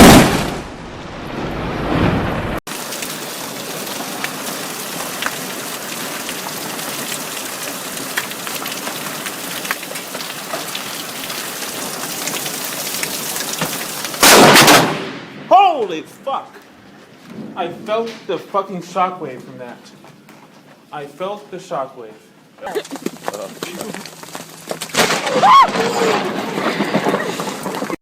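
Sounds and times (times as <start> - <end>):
loud thunderclap: 0.0 - 2.6, 14.2 - 15.5
heavy rain: 0.0 - 15.1, 22.6 - 28.0.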